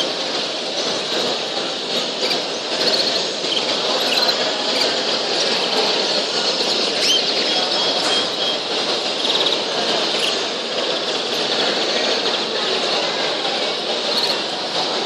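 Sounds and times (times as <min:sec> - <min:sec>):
caged birds chirping: 0:00.0 - 0:13.0, 0:13.8 - 0:14.9
bird trills: 0:02.0 - 0:05.0, 0:06.9 - 0:10.4, 0:14.1 - 0:14.4.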